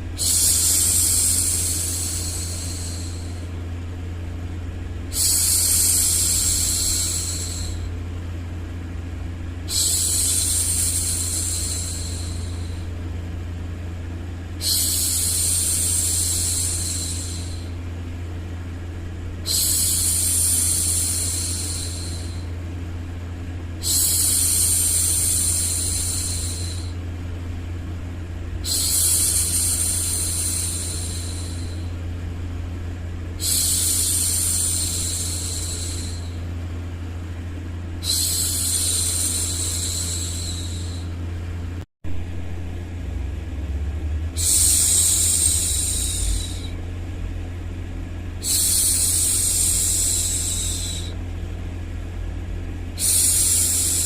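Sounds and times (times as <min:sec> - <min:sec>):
low white noise hum: 0:00.0 - 0:54.0
woman shushing: 0:44.4 - 0:46.8.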